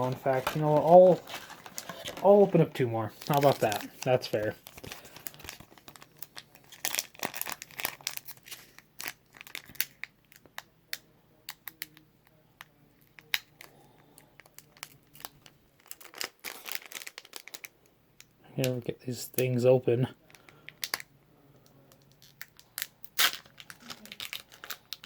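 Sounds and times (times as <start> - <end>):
foil packs crinkling and tearing: 0.0 - 10.4, 13.2 - 17.7, 22.2 - 25.0.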